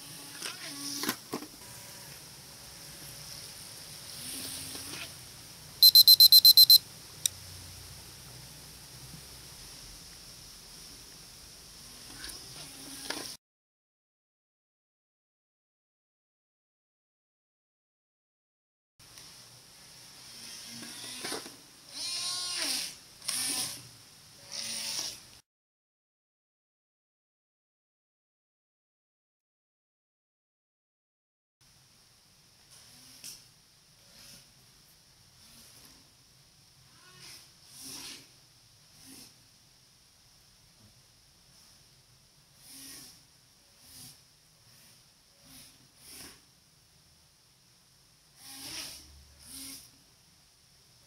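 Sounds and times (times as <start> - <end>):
faint steady hiss: 2.6 - 13.3, 31.6 - 48.4
short electronic beeps: 5.8 - 6.8
hiss: 42.5 - 46.5, 48.3 - 50.0.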